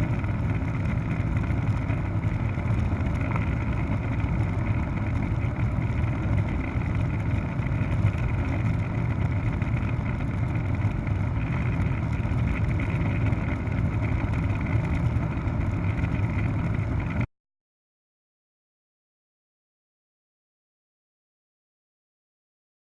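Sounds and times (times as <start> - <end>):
helicopter engine and rotor drone: 0.0 - 17.3.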